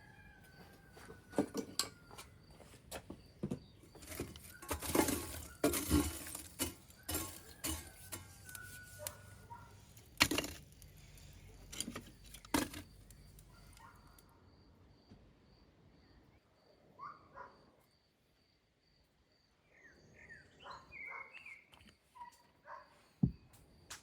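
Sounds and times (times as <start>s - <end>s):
dishes clinking and clattering: 4.0s - 8.3s.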